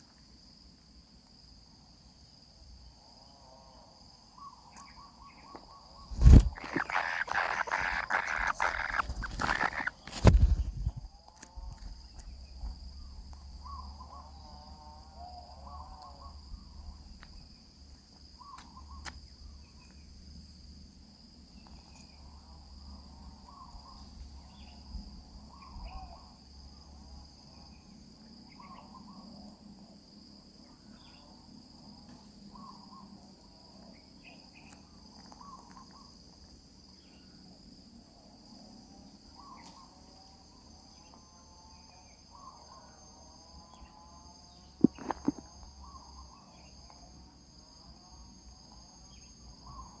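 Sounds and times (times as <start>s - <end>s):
crickets droning: 0.0s - 50.0s
nestlings chirping: 6.1s - 11.0s.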